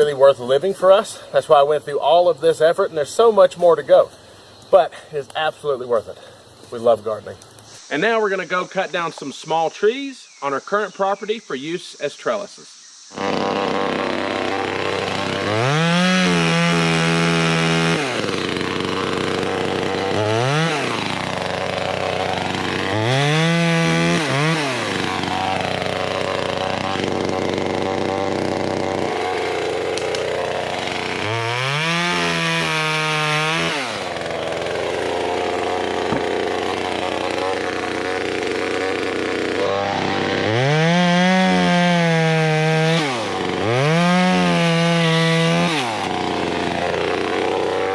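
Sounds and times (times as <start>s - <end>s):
chainsaw revving while cutting: 13.1s - 47.9s.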